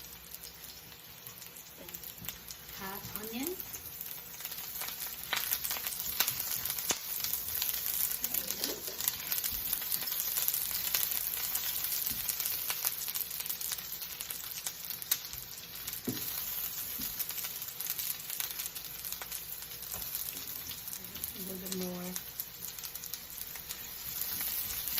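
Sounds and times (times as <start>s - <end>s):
onion sizzling in hot oil: 0.0s - 24.9s.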